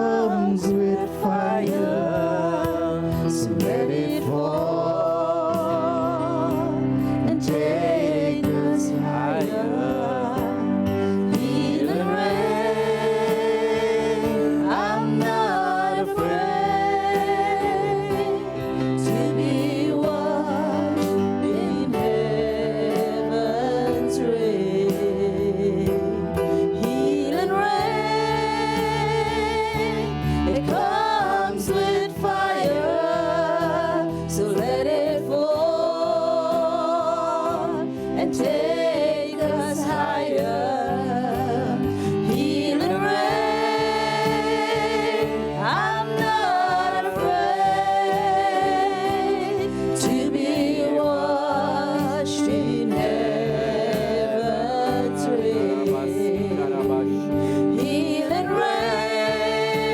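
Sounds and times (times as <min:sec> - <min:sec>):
keyboard chords: 0:00.0 - 0:59.9.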